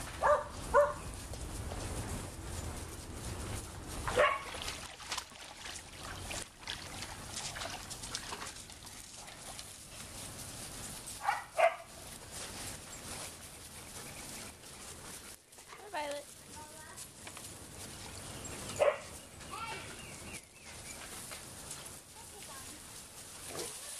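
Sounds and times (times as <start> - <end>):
dog barking: 0.2 - 1.0, 4.1 - 4.5, 11.2 - 11.9, 18.8 - 19.1.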